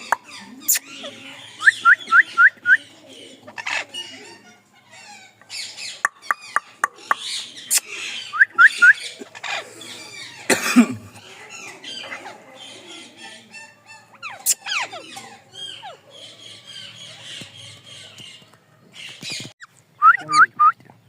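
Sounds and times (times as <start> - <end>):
parrot chattering and squawking: 3.5 - 10.5, 11.2 - 17.5.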